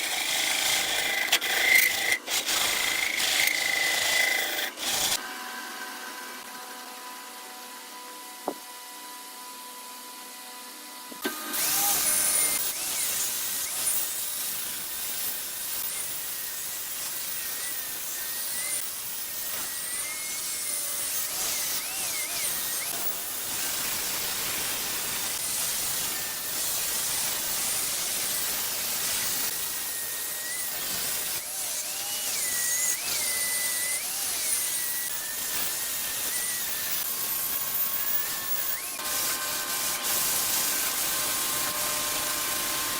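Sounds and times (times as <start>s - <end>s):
turning tool scraping wood: 0.0s - 5.2s
wood lathe humming: 0.0s - 13.7s, 31.4s - 42.9s.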